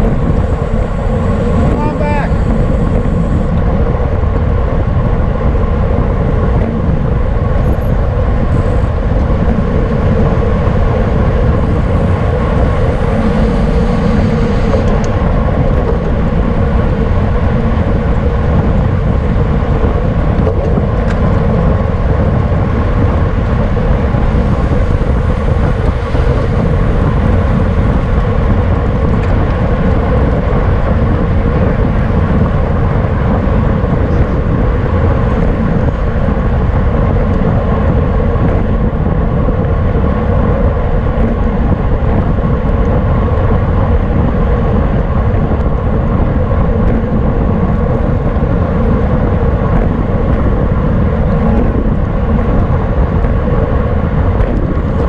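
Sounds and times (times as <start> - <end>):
bicycle tyres and drivetrain hum: 0.0 - 55.0
wind rumble on microphone: 0.0 - 55.0.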